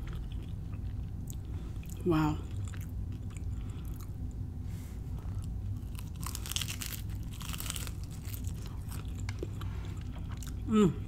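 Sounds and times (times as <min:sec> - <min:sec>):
person chewing: 0:00.0 - 0:04.4, 0:05.1 - 0:10.7
pastry crust crunching: 0:05.2 - 0:10.7.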